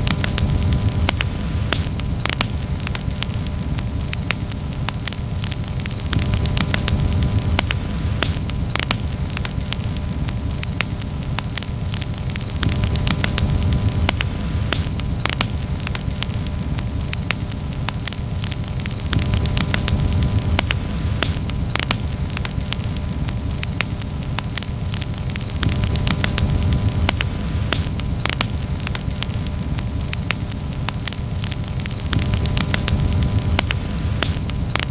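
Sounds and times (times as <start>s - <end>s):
campfire crackling and popping: 0.0s - 34.9s
low rumble of flame: 0.0s - 34.9s.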